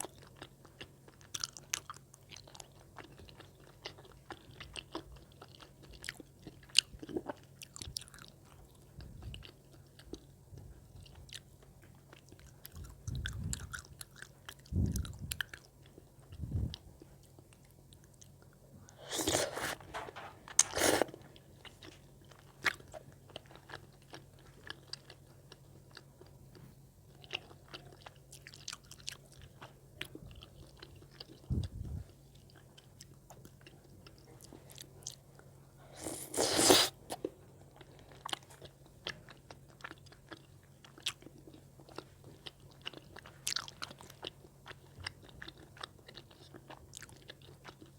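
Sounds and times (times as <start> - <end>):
person chewing: 12.4 - 17.5, 18.1 - 26.0, 35.9 - 47.9.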